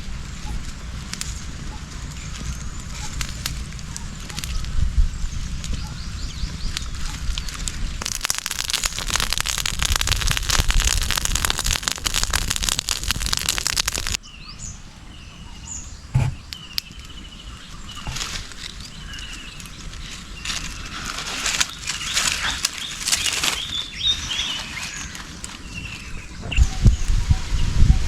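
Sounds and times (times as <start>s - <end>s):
cooking fire crackling and sizzling: 0.0s - 14.2s, 16.1s - 28.0s
forest ambience: 0.0s - 27.8s
birds chirping in trills: 0.0s - 28.0s
thump: 16.1s - 16.4s.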